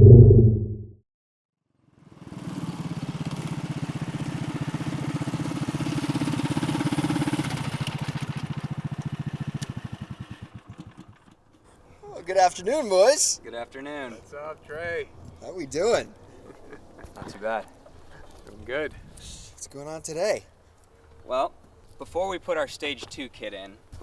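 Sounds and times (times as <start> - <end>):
small engine running: 2.0 - 11.4.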